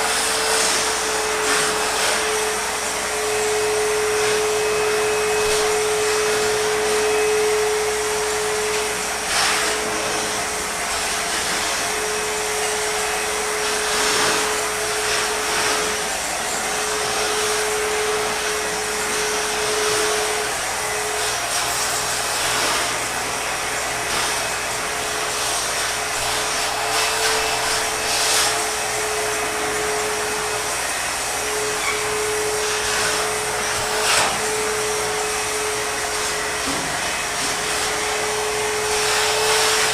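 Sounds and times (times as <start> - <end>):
backpack vacuum running: 0.0 - 39.9.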